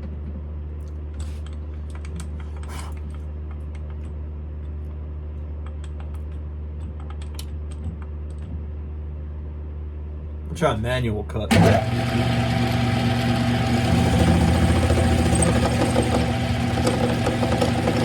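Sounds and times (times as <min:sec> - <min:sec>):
lathe motor humming: 0:11.5 - 0:18.0.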